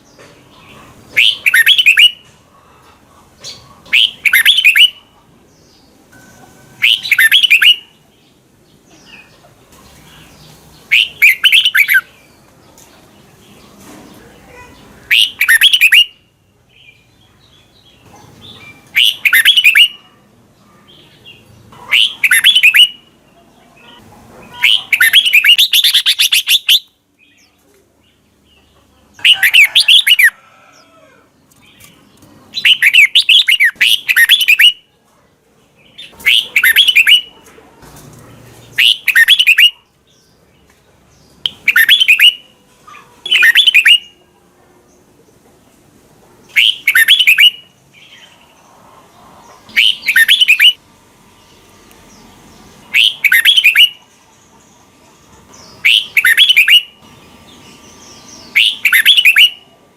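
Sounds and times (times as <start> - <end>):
bulbul singing whistled phrases: 1.2 - 2.2, 3.9 - 5.1, 6.8 - 8.0, 10.9 - 12.2, 15.0 - 17.0, 18.6 - 20.1, 21.9 - 23.1, 24.5 - 27.4, 32.6 - 34.9, 36.0 - 37.3, 38.8 - 39.8, 41.5 - 42.5, 43.2 - 44.2, 46.5 - 47.8, 49.7 - 50.8, 52.9 - 54.0, 55.7 - 57.0, 58.4 - 59.7.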